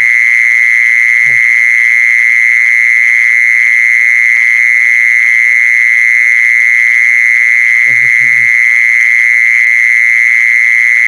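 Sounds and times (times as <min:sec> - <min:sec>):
insect trilling: 0:00.0 - 0:02.0, 0:07.7 - 0:08.8.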